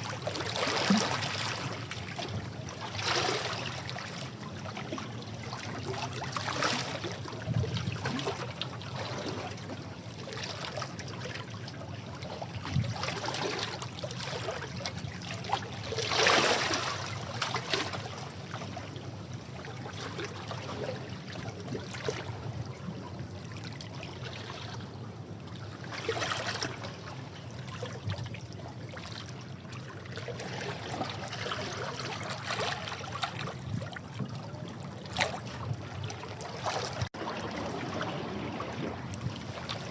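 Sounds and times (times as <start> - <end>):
waves washing against rocks: 36.8 - 39.9.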